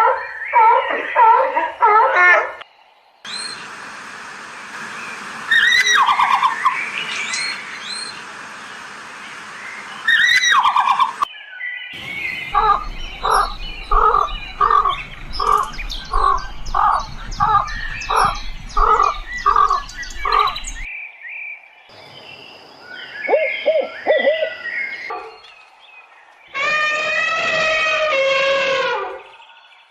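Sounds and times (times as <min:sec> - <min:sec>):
bird calling pitched notes: 0:03.2 - 0:03.8, 0:04.8 - 0:11.3, 0:11.9 - 0:20.9
higher bird chirping: 0:03.2 - 0:03.8, 0:04.8 - 0:26.9.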